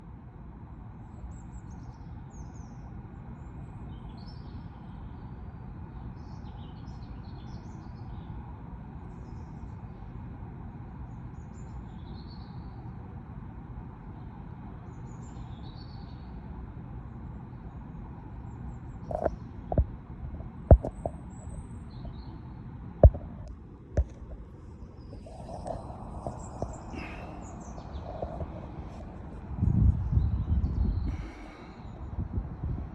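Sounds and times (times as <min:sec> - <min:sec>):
low background rumble: 0:00.0 - 0:32.9
small birds chirping: 0:20.7 - 0:23.2, 0:24.0 - 0:32.3.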